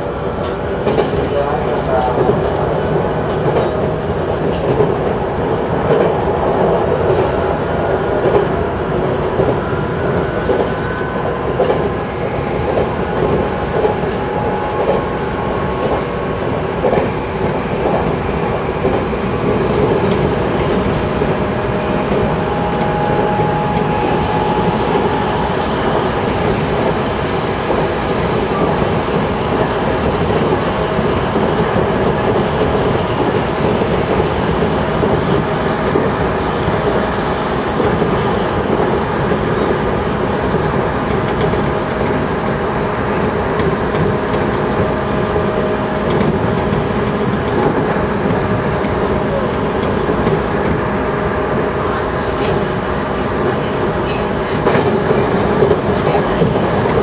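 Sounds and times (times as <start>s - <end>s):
rail joint clicks: 0.0s - 57.0s
rumble of wheels on rail: 0.0s - 57.0s.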